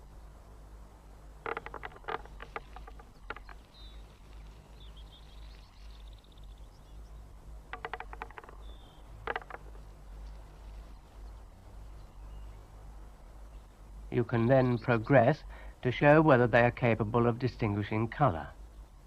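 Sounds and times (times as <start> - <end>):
steady low hum: 0.0 - 19.0
birds pecking at machine clicks: 1.4 - 3.6, 7.7 - 9.8
faint high bird calls: 1.4 - 12.7.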